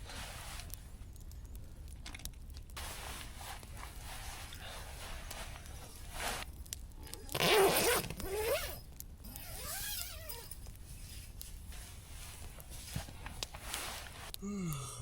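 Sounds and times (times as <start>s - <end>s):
fabric rustling: 2.8s - 6.5s, 9.5s - 14.3s
zip being pulled: 7.3s - 10.6s.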